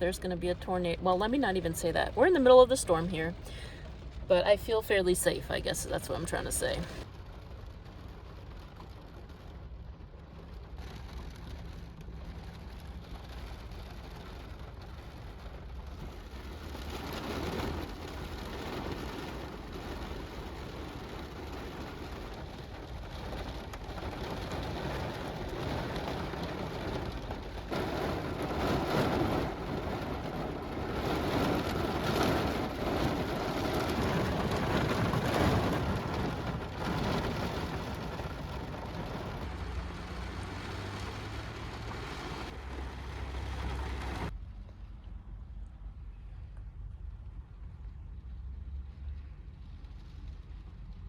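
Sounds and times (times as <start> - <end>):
heavy rain pouring: 12.4 - 44.3.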